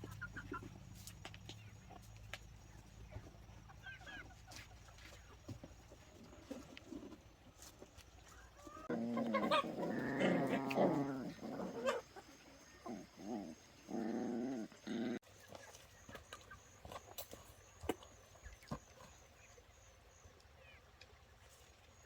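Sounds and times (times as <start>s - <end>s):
dogs whining: 8.8s - 12.2s.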